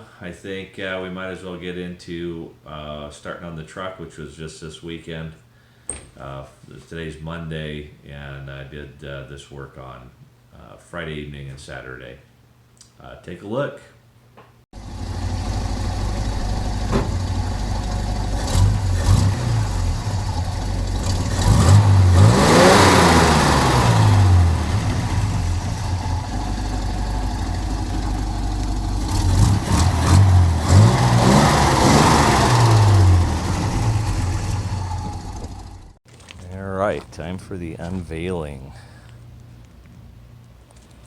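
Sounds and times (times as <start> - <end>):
engine idling and revving: 14.8 - 36.0.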